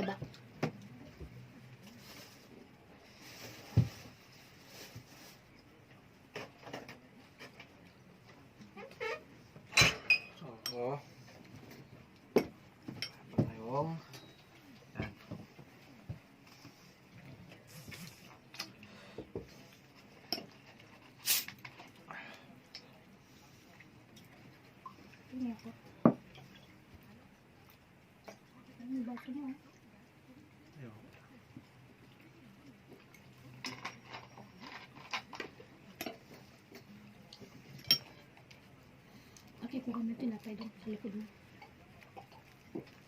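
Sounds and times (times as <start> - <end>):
cutlery clinking on dishes: 9.7 - 10.8, 37.7 - 38.3
tableware clicks and taps: 9.7 - 10.8, 37.8 - 38.2.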